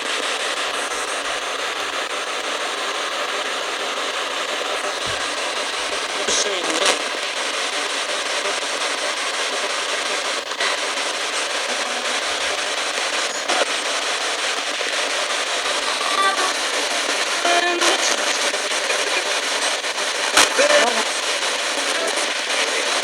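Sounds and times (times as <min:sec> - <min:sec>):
radio static hiss: 0:00.0 - 0:23.0
brief radio station tones: 0:11.6 - 0:13.8, 0:15.1 - 0:19.4.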